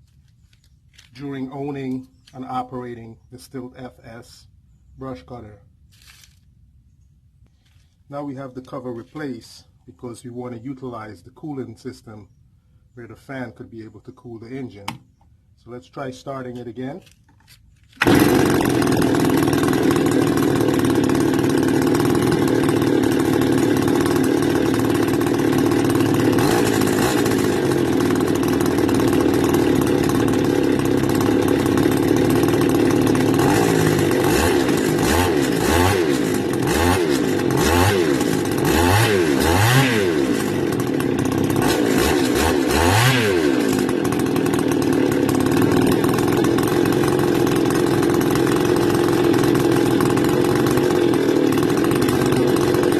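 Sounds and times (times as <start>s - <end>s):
brush cutter engine running: 5.9s - 6.4s, 16.6s - 52.9s.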